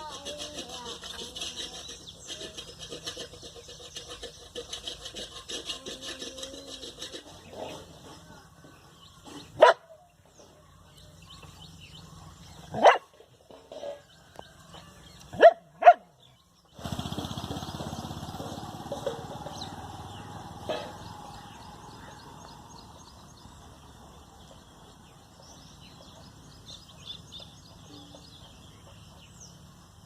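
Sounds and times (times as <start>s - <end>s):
background hum: 0.0s - 30.0s
dog barking: 9.6s - 10.0s, 12.7s - 13.1s, 15.4s - 16.1s.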